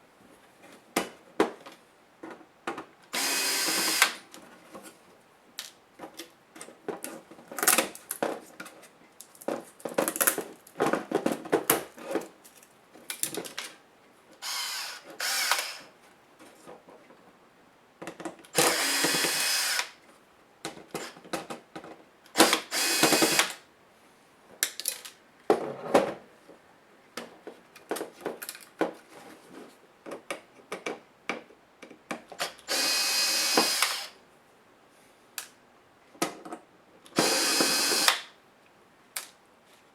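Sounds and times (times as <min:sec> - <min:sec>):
electric screwdriver running: 0:03.2 - 0:04.2, 0:14.4 - 0:15.9, 0:18.6 - 0:20.0, 0:22.4 - 0:23.5, 0:32.7 - 0:34.1, 0:37.2 - 0:38.3.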